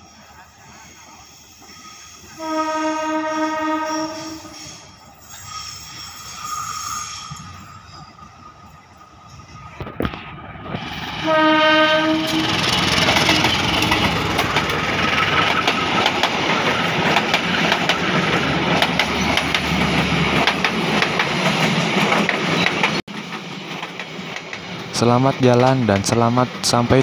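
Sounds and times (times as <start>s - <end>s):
locomotive engine: 2.2s - 24.9s
locomotive horn blast: 2.4s - 4.8s, 11.2s - 13.6s
train wheels clattering over rail joints: 12.4s - 27.0s.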